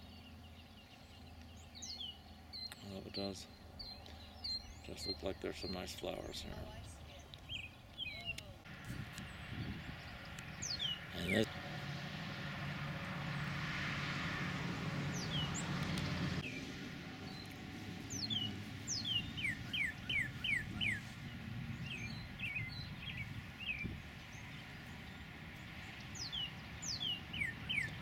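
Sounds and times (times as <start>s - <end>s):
songbird whistling: 18.1s - 21.1s, 26.2s - 28.0s.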